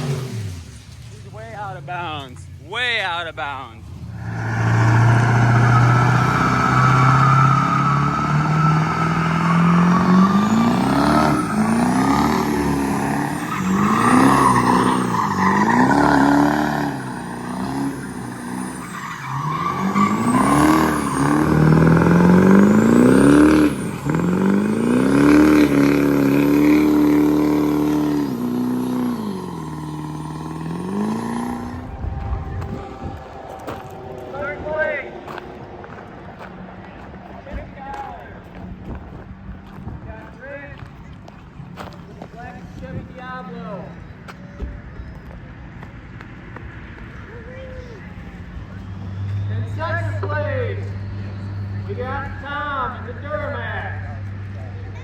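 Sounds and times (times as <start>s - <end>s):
car engine revving: 0.0s - 40.1s.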